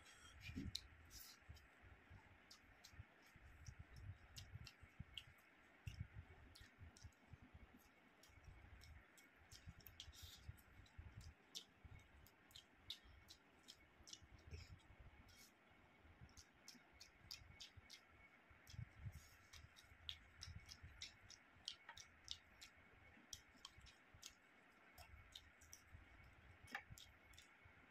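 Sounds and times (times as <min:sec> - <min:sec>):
man chewing food: 0:00.1 - 0:15.6, 0:16.2 - 0:27.7.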